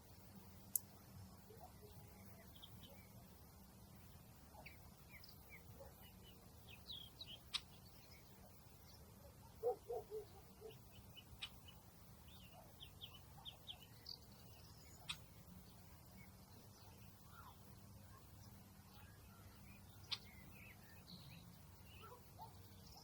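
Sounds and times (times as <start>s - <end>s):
small birds chirping: 0.0s - 23.0s
sharp ticks: 0.7s - 0.9s.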